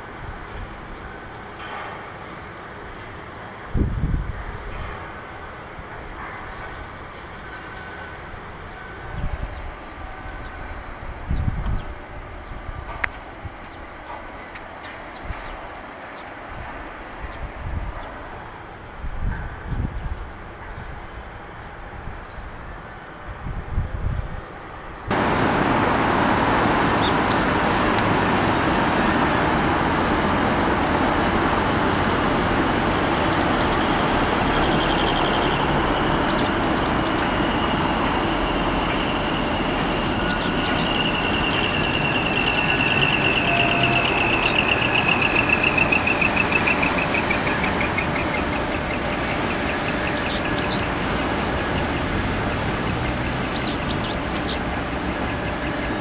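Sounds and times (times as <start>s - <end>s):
outdoor background noise: 0.0s - 56.0s
small birds chirping: 27.0s - 27.5s, 33.2s - 37.6s, 39.9s - 52.1s, 53.0s - 54.7s
rapid bird trill: 33.2s - 37.9s, 38.8s - 50.9s, 53.4s - 54.7s.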